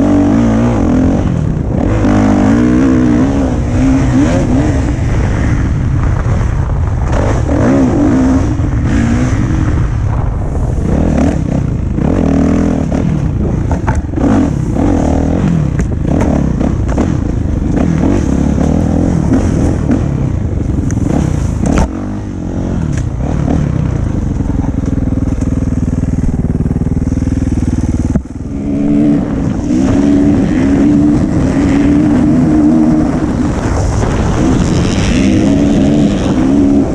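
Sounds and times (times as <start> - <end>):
dirt bike engine revving: 0.0 - 36.9
knocks and rattles: 13.4 - 14.2.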